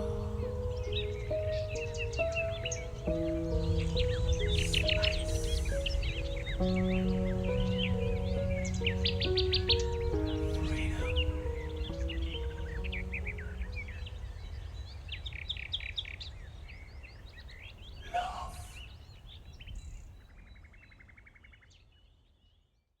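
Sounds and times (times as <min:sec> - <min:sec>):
low drone: 0:00.0 - 0:14.3
psychedelic music with piano: 0:00.0 - 0:15.1
birds chirping: 0:00.0 - 0:22.6.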